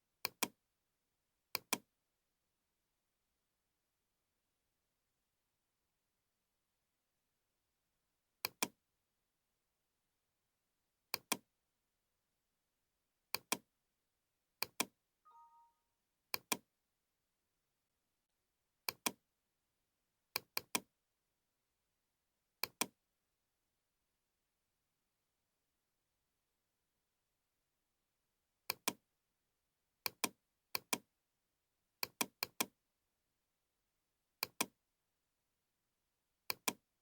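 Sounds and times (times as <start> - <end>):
computer mouse button clicks: 11.2 - 11.4, 14.6 - 15.7, 36.5 - 36.8
short electronic beep: 15.3 - 15.9.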